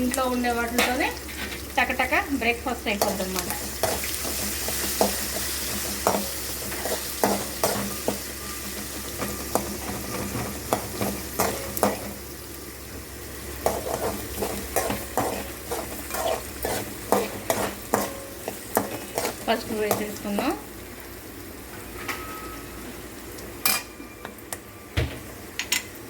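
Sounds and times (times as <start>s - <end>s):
onions sizzling in oil: 0.0s - 26.0s
spatula scraping a pan: 3.0s - 12.1s, 13.6s - 20.4s.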